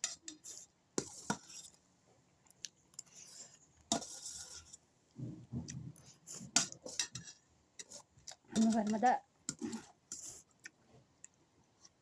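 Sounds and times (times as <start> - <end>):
utensil scraping a plate: 3.2 - 4.8.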